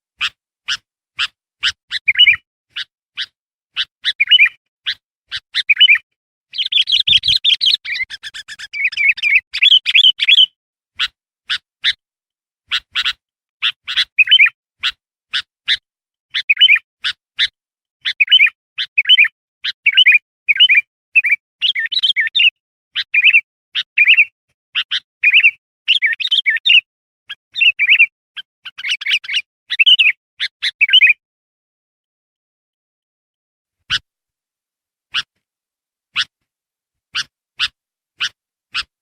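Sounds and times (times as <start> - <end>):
bulbul singing chips and warbles: 5.6 - 10.5.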